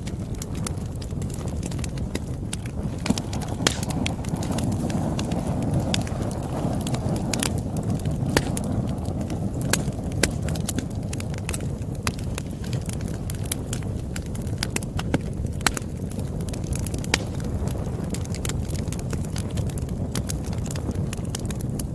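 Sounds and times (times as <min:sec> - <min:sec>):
wood fire crackling: 0:00.0 - 0:21.9.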